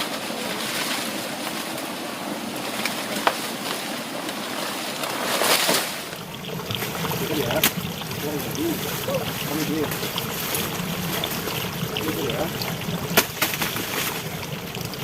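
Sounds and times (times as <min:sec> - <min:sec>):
heavy rain hissing: 0:05.8 - 0:15.0
raindrops ticking: 0:06.1 - 0:15.0.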